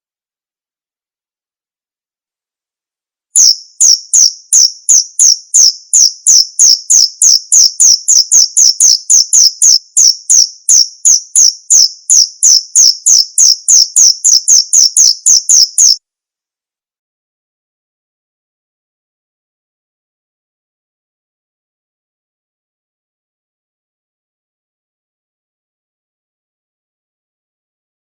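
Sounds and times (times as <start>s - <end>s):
cricket chirping: 3.4s - 16.0s.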